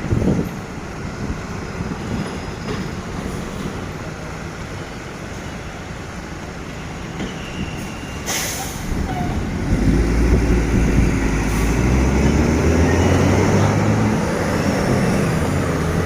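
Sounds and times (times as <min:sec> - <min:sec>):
heavy traffic rumble: 0:00.0 - 0:16.0.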